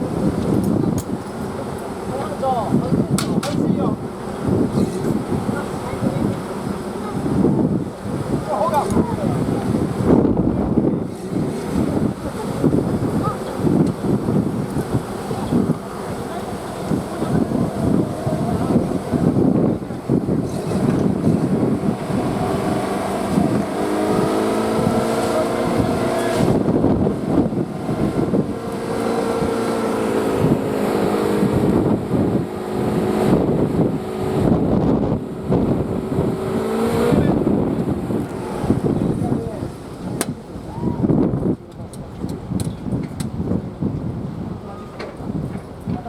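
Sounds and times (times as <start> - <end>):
wind buffeting microphone: 0.0 - 46.0
vehicle engine running: 3.9 - 40.4.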